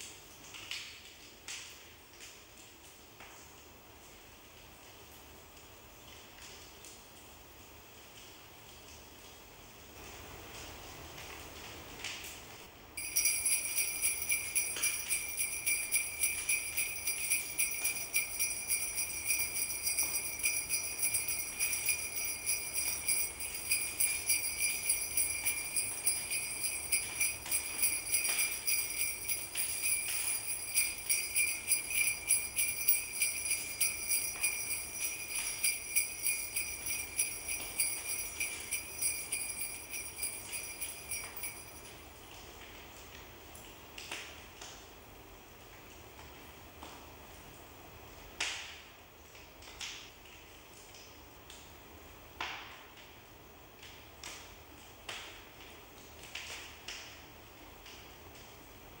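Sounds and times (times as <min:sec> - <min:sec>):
sleigh bells jingling: 0:13.0 - 0:42.0.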